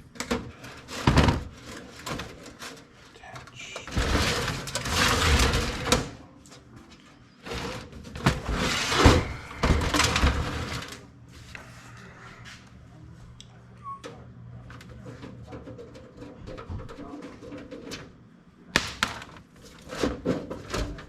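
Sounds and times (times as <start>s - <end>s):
metal parts scraping and rattling: 3.6s - 6.1s.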